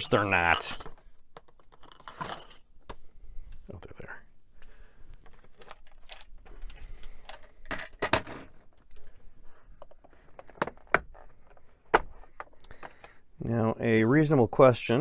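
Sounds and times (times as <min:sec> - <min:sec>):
rummaging through metal hardware: 0:00.0 - 0:02.8.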